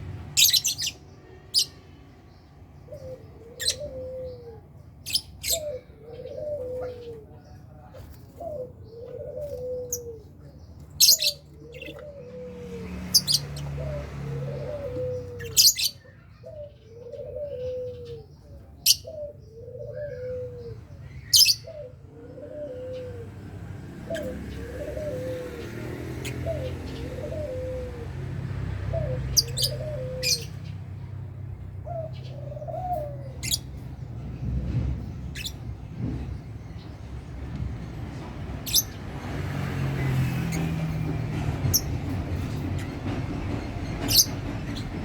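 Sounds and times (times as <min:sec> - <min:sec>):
lovebirds chirping: 0:00.0 - 0:21.9, 0:23.9 - 0:31.2, 0:31.9 - 0:34.2
low rising and falling call: 0:11.0 - 0:16.0, 0:21.4 - 0:30.9.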